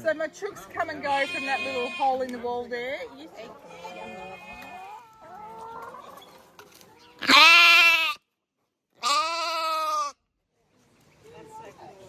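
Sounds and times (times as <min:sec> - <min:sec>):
goat bleating: 0:00.9 - 0:02.4, 0:03.7 - 0:05.1, 0:07.2 - 0:08.2, 0:09.0 - 0:10.2.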